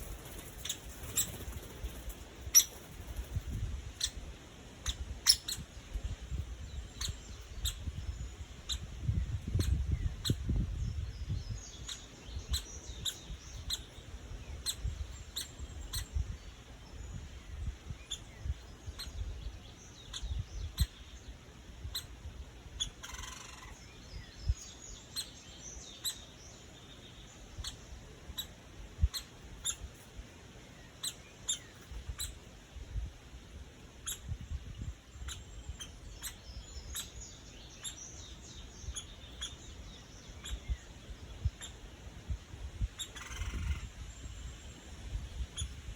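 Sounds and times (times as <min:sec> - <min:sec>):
woodpecker calling: 0:00.0 - 0:05.8, 0:11.6 - 0:16.2, 0:18.0 - 0:30.0, 0:30.8 - 0:32.5, 0:33.9 - 0:34.5, 0:35.2 - 0:41.9, 0:42.9 - 0:44.0.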